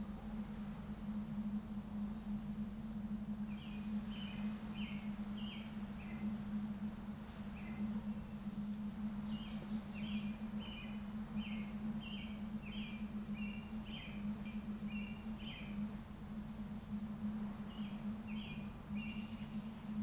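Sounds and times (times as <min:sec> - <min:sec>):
steady low hum: 0:00.0 - 0:20.0
small bird chirping: 0:17.6 - 0:20.0.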